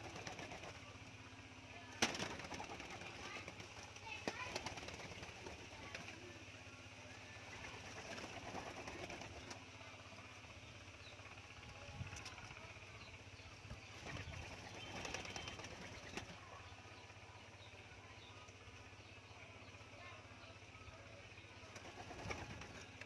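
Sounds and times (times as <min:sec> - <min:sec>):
doves flapping wings: 0:00.0 - 0:01.1, 0:01.8 - 0:09.8, 0:13.6 - 0:17.2, 0:21.6 - 0:23.0.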